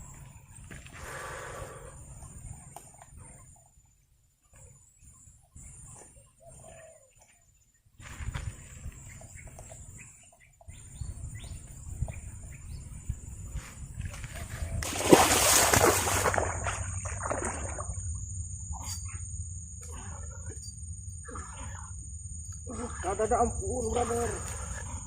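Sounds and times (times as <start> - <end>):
splash in water: 14.8 - 18.1.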